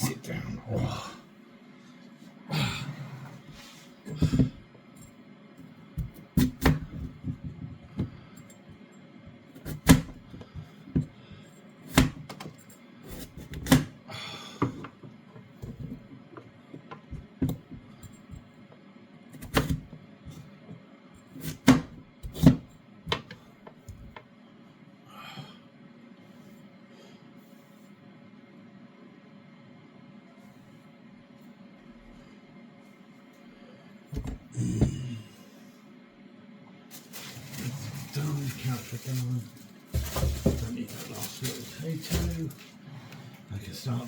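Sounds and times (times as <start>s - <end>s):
knife chopping on board: 6.0s - 7.6s, 9.6s - 10.2s, 11.9s - 12.2s, 13.2s - 13.9s, 19.4s - 19.9s.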